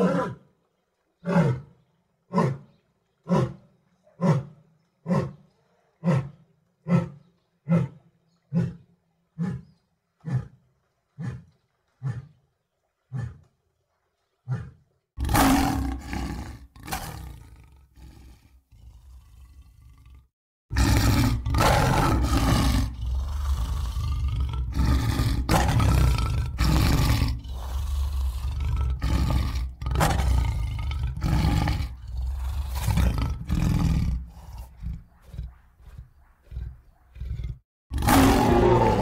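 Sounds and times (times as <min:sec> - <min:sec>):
big cat roaring: 0:14.5 - 0:39.0.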